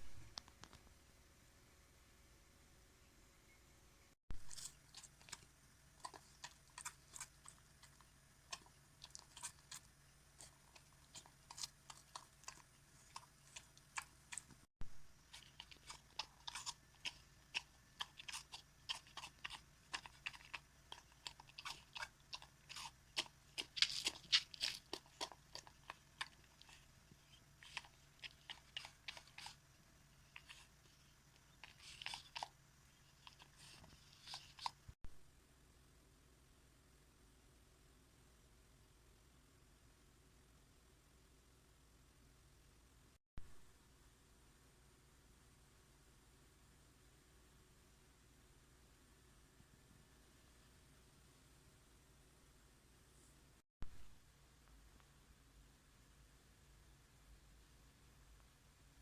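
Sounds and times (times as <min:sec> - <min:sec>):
dog chewing wetly: 0:04.4 - 0:34.9.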